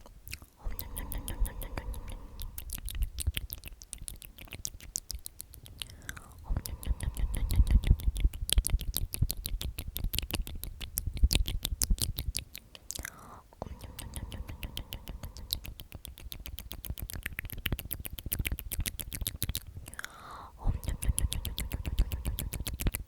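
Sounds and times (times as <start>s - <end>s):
wet mouth clicks and smacks: 0.0s - 23.0s
person whispering: 0.3s - 5.0s, 5.6s - 9.6s, 12.7s - 16.8s, 19.8s - 23.0s
low humming: 0.6s - 3.7s, 5.9s - 12.3s, 20.6s - 23.0s.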